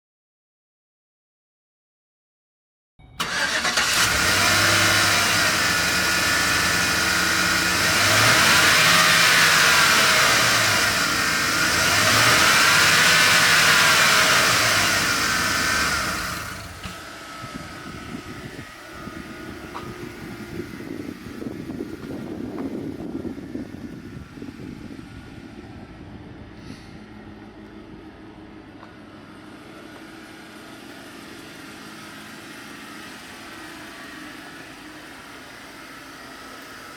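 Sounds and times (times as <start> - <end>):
van engine starting and revving: 3.2 - 24.8.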